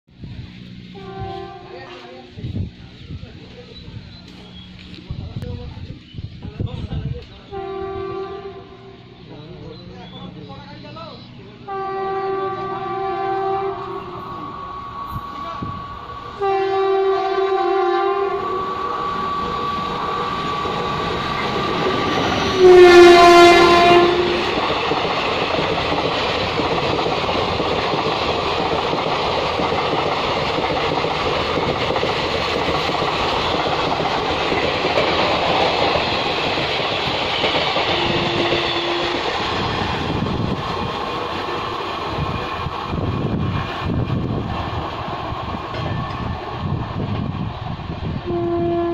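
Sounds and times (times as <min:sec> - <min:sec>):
train coaches rattling over rails: 0:00.5 - 0:48.9
train horn blasts: 0:00.9 - 0:02.4, 0:07.5 - 0:09.3, 0:11.6 - 0:24.6, 0:37.9 - 0:39.4, 0:48.2 - 0:48.9.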